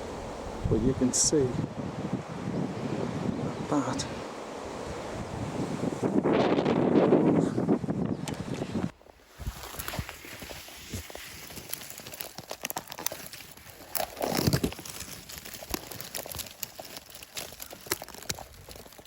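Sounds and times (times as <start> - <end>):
leaves rustling and crackling: 8.3 - 19.0
brushing rustle: 9.0 - 19.0.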